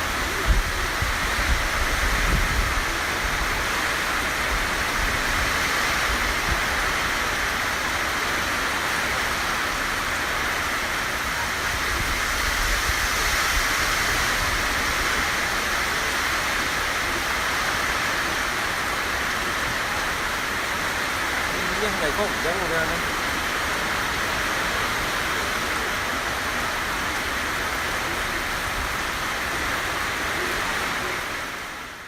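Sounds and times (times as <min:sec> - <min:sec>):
heavy rain pouring: 0:00.0 - 0:32.0
wind buffeting microphone: 0:00.1 - 0:03.8.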